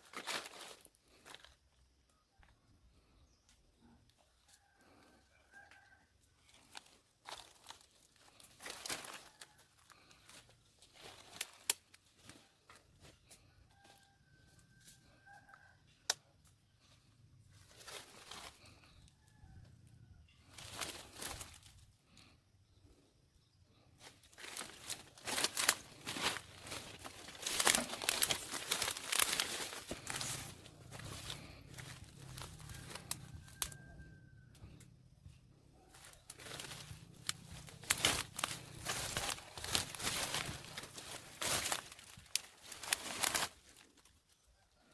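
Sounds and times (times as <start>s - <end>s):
crinkling scraping handling noise: 0.0s - 1.6s, 6.5s - 13.5s, 17.5s - 18.9s, 20.4s - 22.3s, 24.0s - 34.9s, 35.8s - 44.4s.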